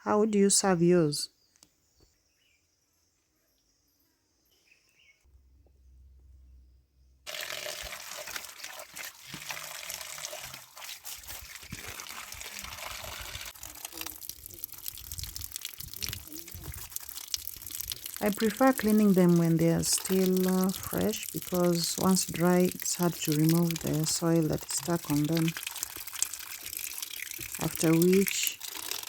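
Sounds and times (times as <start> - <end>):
water pouring and splashing: 7.3 - 29.0.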